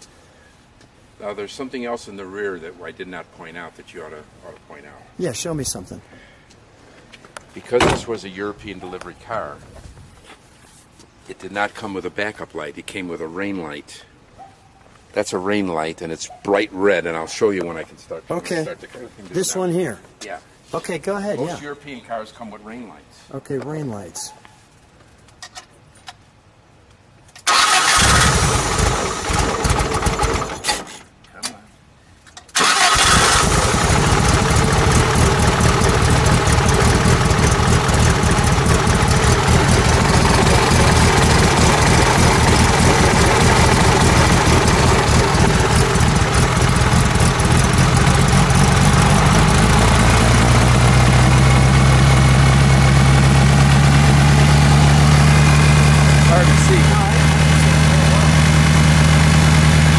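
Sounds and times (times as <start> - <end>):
car engine starting and running: 27.5 - 30.8, 32.6 - 59.9.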